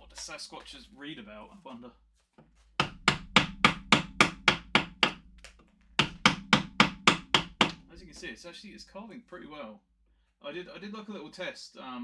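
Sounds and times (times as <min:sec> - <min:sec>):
mallet knocking on chisel: 0:02.8 - 0:08.3.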